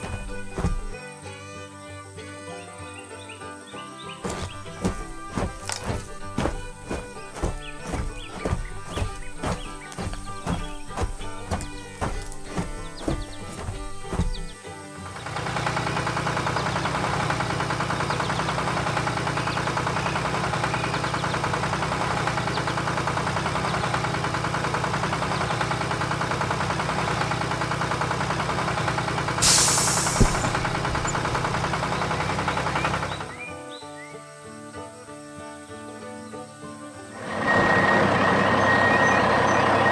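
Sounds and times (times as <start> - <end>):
short burst of hiss: 29.4 - 30.6.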